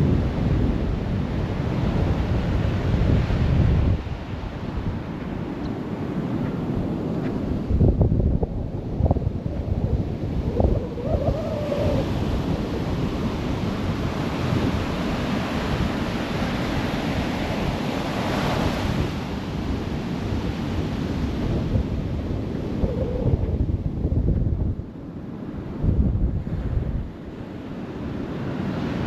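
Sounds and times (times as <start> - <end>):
ocean surf washing ashore: 0.0 - 29.0
wind buffeting microphone: 0.0 - 29.0.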